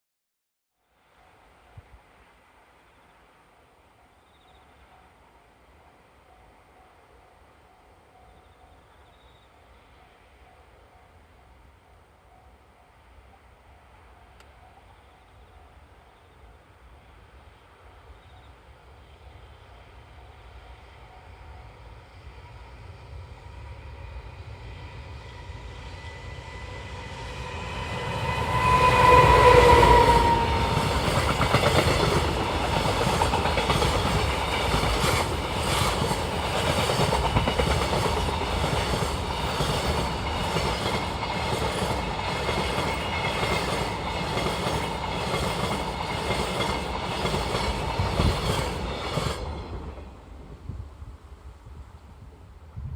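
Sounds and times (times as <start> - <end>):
locomotive whining tone: 24.2 - 35.6
clickety-clack of wheels: 30.8 - 49.6.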